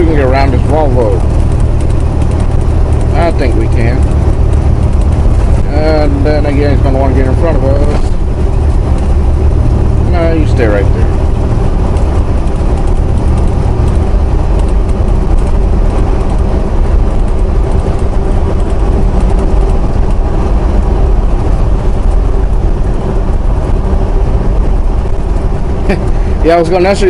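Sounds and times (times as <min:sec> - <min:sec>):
truck engine and road rumble: 0:00.0 - 0:27.0.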